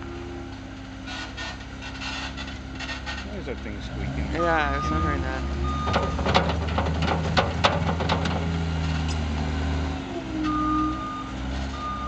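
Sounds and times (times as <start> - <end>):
diesel engine running: 0.0 - 12.0
reversing beeper: 4.3 - 6.4, 10.1 - 12.0.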